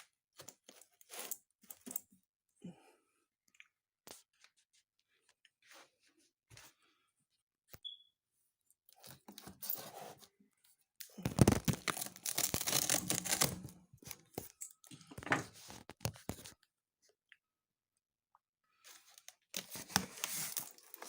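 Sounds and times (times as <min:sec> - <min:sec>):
cardboard packaging tearing: 0:11.2 - 0:14.2, 0:19.6 - 0:21.0.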